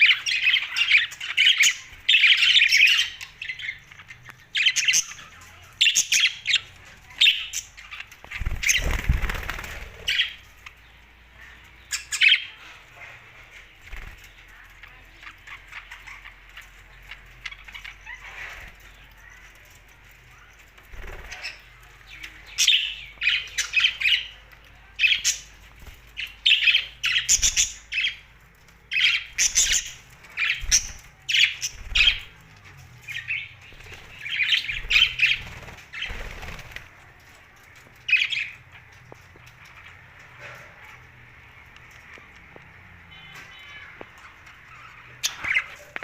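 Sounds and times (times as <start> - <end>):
wings fluttering: 7.9 - 10.6, 20.6 - 22.0, 29.3 - 38.2
budgerigars chirping: 26.2 - 28.3, 28.9 - 32.3, 33.1 - 36.7.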